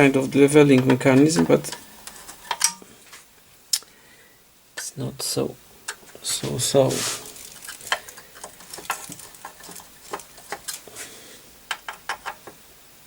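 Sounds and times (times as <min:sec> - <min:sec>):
solder pot clicking and crackling: 0:00.0 - 0:02.9, 0:05.8 - 0:12.6.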